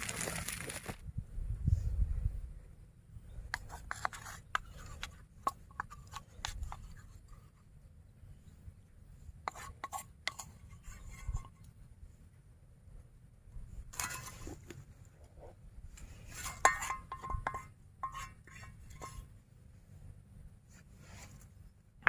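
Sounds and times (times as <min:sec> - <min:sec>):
low steady rumble: 0:01.0 - 0:03.9.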